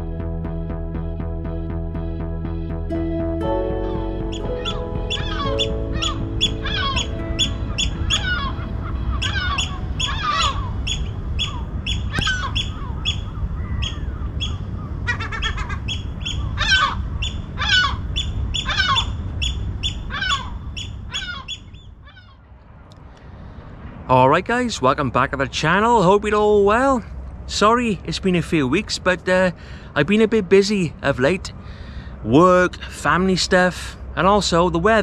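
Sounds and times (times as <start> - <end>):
wind rumble: 0.0 - 32.9
birds calling: 3.6 - 22.6.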